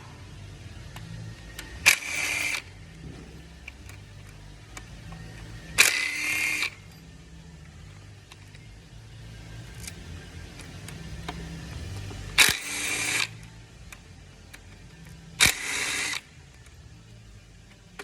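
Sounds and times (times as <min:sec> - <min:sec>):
low workshop hum: 0:00.0 - 0:18.0
power tool bursts: 0:01.8 - 0:02.7, 0:05.8 - 0:06.8, 0:12.4 - 0:13.4, 0:15.4 - 0:16.3.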